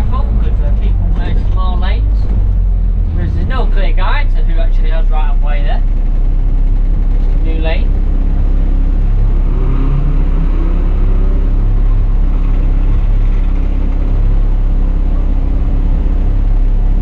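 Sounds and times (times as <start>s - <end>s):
diesel bus engine droning: 0.0s - 17.0s.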